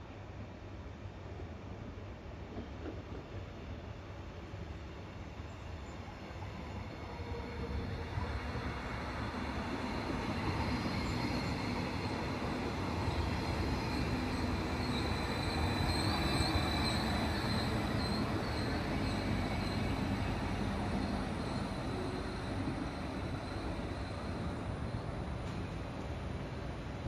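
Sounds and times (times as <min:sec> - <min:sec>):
train approaching: 0:00.4 - 0:27.0
high wavering wheel squeal: 0:13.0 - 0:25.0.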